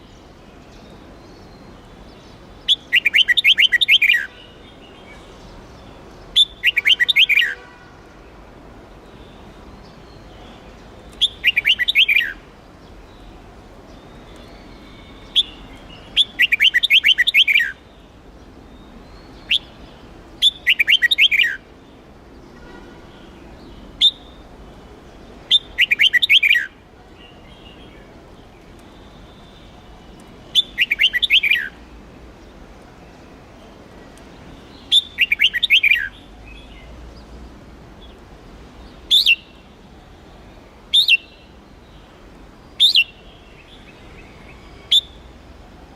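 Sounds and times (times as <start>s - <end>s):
bulbul singing: 0.8s - 4.6s, 5.8s - 7.7s, 9.2s - 21.7s, 22.4s - 24.4s, 25.2s - 28.1s, 28.8s - 31.8s, 34.6s - 37.3s, 38.8s - 39.7s, 42.7s - 45.3s
sharp bird call notes: 6.4s - 7.8s, 11.2s - 12.4s, 14.5s - 17.8s, 20.4s - 21.6s, 25.5s - 26.7s, 30.5s - 31.8s, 34.8s - 36.2s.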